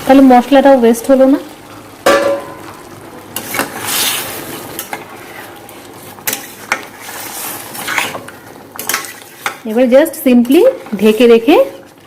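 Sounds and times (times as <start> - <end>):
utensil scraping cooking pan: 1.7 - 12.0
hiss in pan: 3.3 - 8.0.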